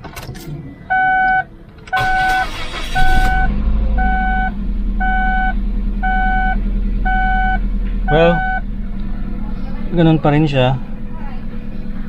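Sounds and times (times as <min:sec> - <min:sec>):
car engine cranking and idling: 0:00.0 - 0:12.0
car warning chime beeping: 0:00.9 - 0:08.6.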